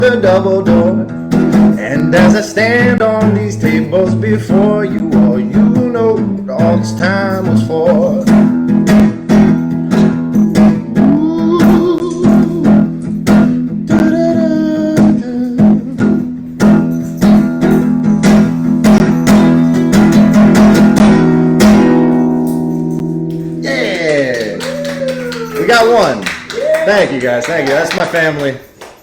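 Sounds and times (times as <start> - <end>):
acoustic guitar strumming: 0.0 - 27.9
wordless sung notes: 9.8 - 19.7.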